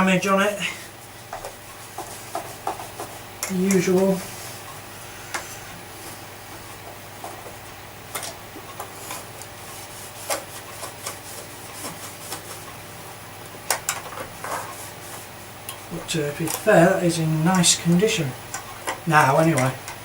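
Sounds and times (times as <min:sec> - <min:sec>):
rubbing of plastic parts: 0:08.8 - 0:12.8.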